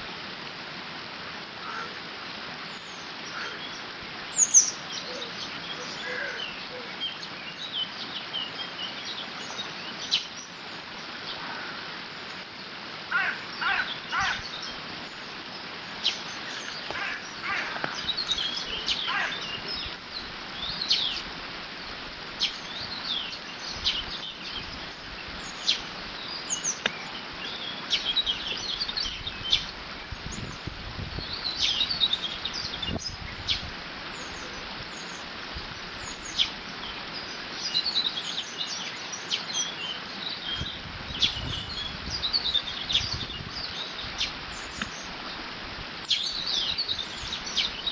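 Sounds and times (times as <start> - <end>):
small birds chirping: 2.6 - 47.9
wind rumble: 27.2 - 36.1, 40.5 - 44.8.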